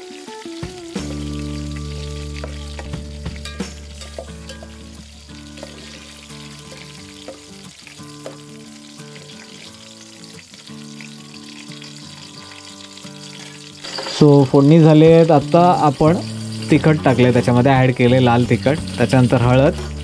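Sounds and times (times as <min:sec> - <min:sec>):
soft background music: 0:00.0 - 0:20.0
spices frying in oil: 0:00.0 - 0:20.0
spoon stirring against a pot: 0:05.6 - 0:07.6.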